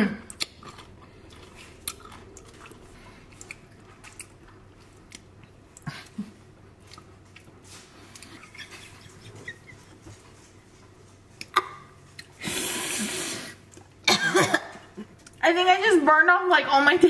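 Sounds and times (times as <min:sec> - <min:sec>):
crunchy bites and chewing: 0:00.2 - 0:05.8.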